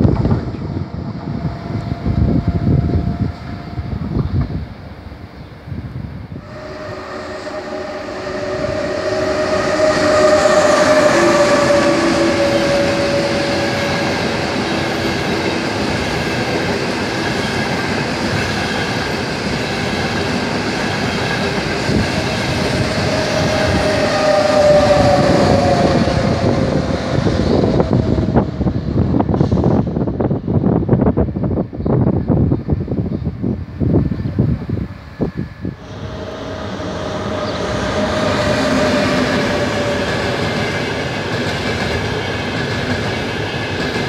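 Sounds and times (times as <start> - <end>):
high-speed train rushing past: 0.0 - 44.0
train whine falling in pitch: 6.4 - 17.8, 21.2 - 30.3, 35.6 - 44.0.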